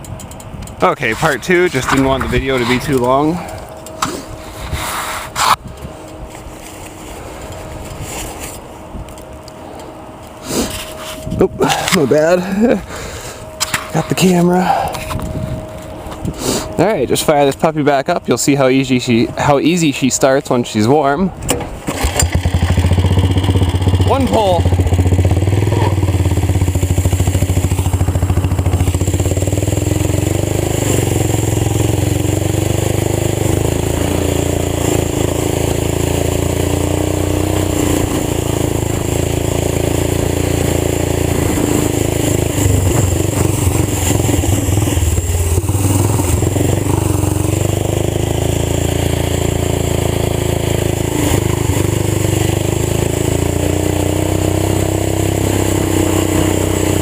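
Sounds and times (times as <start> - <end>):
old tractor engine running: 21.9 - 57.0.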